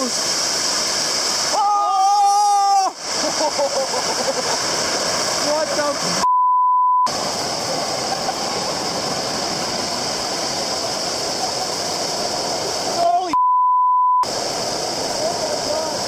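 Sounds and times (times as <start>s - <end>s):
censor bleep: 6.2s - 7.1s, 13.4s - 14.3s
steady rushing roar: 7.1s - 13.4s, 14.2s - 16.0s.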